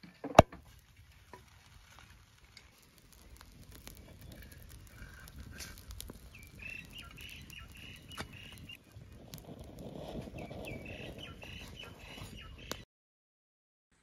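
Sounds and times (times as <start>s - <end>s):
wood fire crackling: 0.1s - 12.8s
bird chirping: 6.3s - 8.8s, 10.4s - 12.8s.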